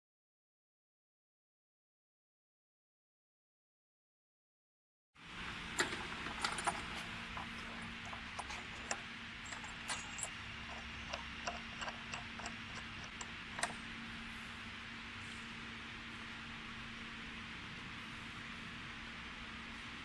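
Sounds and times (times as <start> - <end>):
metal clamp parts clinking: 5.8 - 13.7.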